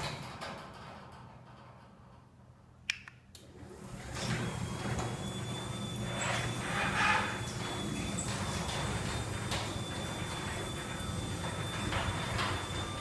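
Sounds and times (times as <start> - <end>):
sharp click: 2.9 - 3.4
garage door motor hum: 3.4 - 13.0.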